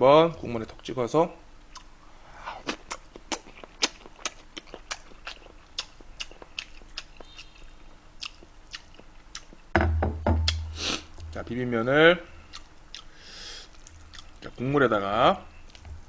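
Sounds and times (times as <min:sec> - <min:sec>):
chewing with wet mouth smacks: 0:02.6 - 0:09.6, 0:12.5 - 0:13.1, 0:13.7 - 0:14.5.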